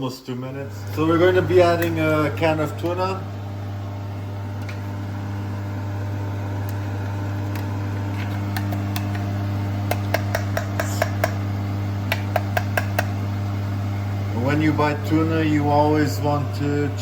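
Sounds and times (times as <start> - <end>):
steady low hum: 0.3 - 17.0
can opener metallic clicks: 7.4 - 11.4, 12.0 - 13.1.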